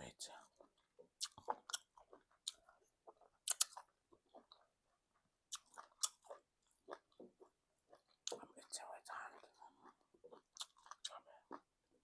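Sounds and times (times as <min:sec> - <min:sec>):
wet chewing and lip smacks: 0:00.2 - 0:12.0.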